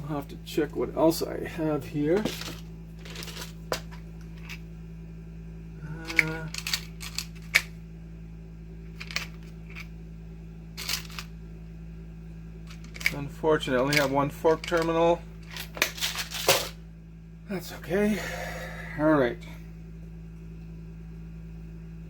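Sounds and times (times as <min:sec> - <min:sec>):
steady electrical hum: 0:00.0 - 0:22.0
small parts clicking and rattling: 0:02.1 - 0:04.6, 0:05.9 - 0:07.7, 0:09.0 - 0:09.9, 0:10.8 - 0:11.3, 0:12.6 - 0:16.8.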